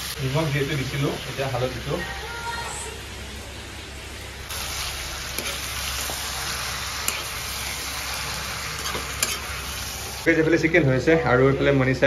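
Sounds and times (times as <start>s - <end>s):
chicken sizzling in a wok: 0.0s - 12.0s
metal spatula scraping: 5.2s - 10.0s.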